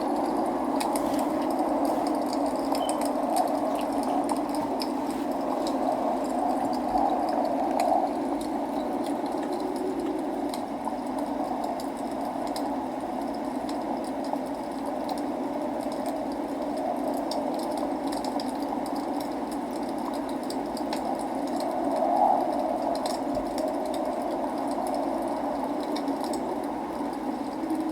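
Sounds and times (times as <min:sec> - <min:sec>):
log fire crackling: 0:00.0 - 0:27.9
steady rain: 0:00.0 - 0:27.9.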